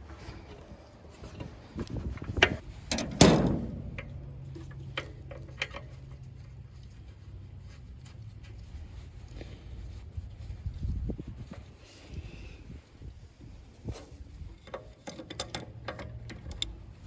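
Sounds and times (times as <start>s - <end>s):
low steady hum: 0.0s - 17.0s
sharp knocks and clunks: 2.3s - 6.2s.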